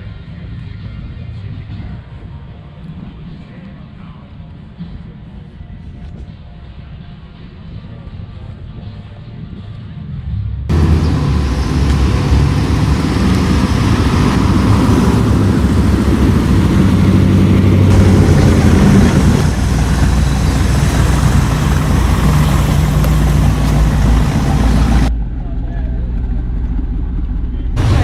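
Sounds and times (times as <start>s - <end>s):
car engine running: 10.7s - 25.2s, 26.1s - 28.0s.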